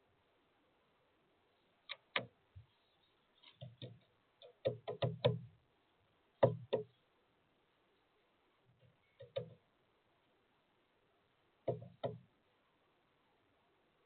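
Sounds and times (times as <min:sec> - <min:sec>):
woodpecker pecking: 0:03.4 - 0:05.5, 0:08.8 - 0:09.6.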